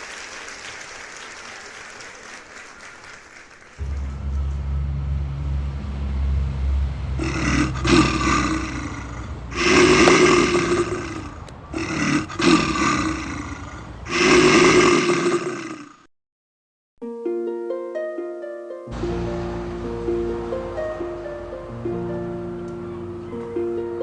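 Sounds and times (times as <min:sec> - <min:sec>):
deep low rumble: 0:03.8 - 0:11.8
monster roars: 0:07.2 - 0:16.1.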